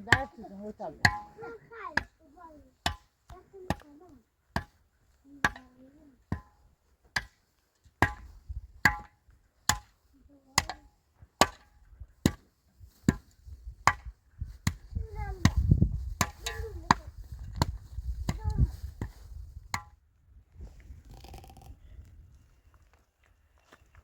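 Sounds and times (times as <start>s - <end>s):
hand tool chopping: 1.0s - 2.2s, 2.8s - 4.8s, 5.4s - 7.4s, 8.0s - 10.0s, 10.6s - 13.3s, 15.4s - 17.0s.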